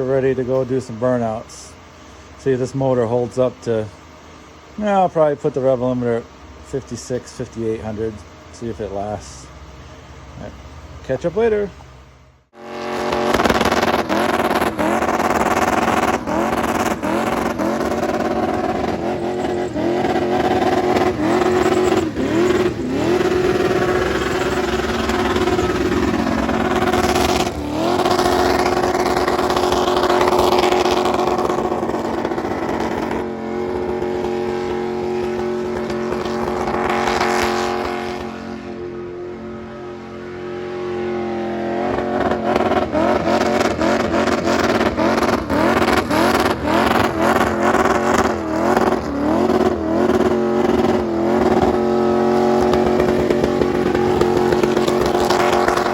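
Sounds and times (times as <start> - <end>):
engine revving hard: 12.5 - 55.9.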